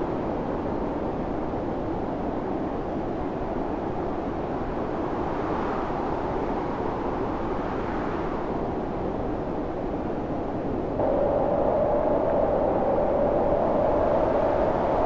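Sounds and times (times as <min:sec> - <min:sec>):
storm wind blowing: 0:10.8 - 0:15.0.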